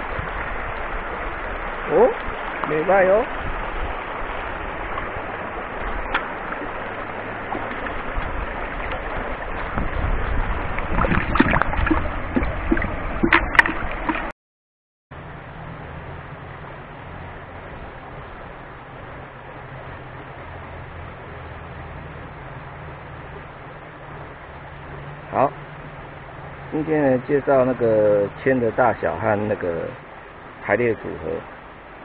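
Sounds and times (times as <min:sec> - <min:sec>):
creek water gurgling: 0:00.0 - 0:14.3, 0:15.2 - 0:32.0
water splashes: 0:00.0 - 0:14.3, 0:15.2 - 0:32.0
low hum: 0:03.5 - 0:14.3.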